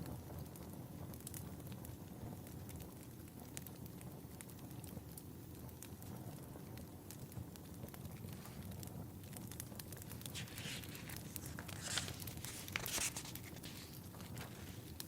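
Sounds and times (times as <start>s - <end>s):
log fire crackling: 0.0s - 15.0s
book pages turning: 10.0s - 15.0s.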